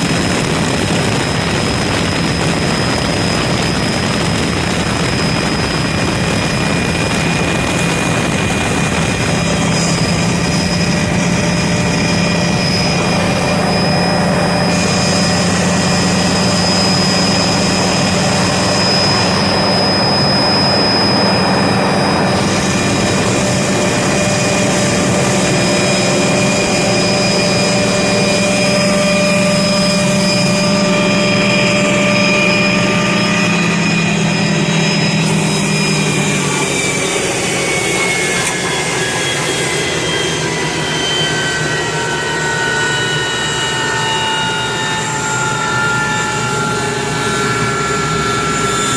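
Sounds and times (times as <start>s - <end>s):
helicopter turbine and rotor: 0.0s - 48.9s.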